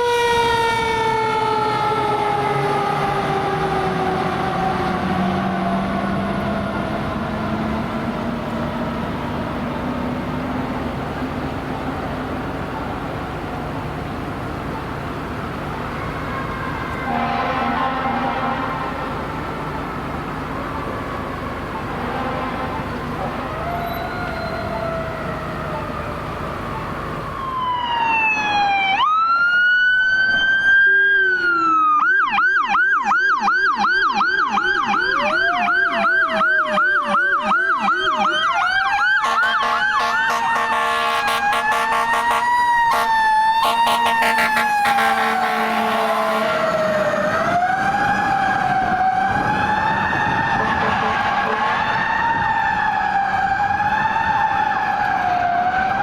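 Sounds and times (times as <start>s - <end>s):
low-pitched siren yelp: 0.0s - 56.0s
vehicle horn blaring: 17.0s - 19.2s, 22.0s - 23.0s, 39.2s - 46.6s
electronic siren wailing and yelping: 20.7s - 56.0s.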